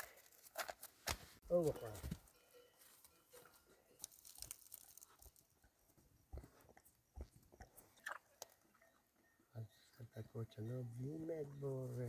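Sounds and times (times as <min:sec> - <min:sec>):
faint crunching and clicking: 0:01.8 - 0:08.9.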